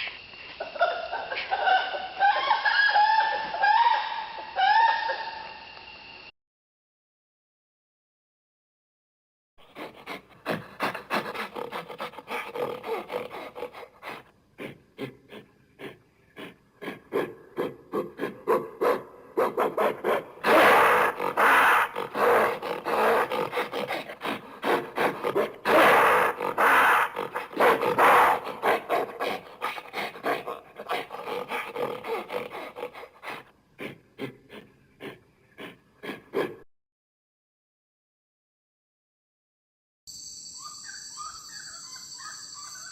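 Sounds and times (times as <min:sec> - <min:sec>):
rasping primate calls: 0:09.6 - 0:36.6.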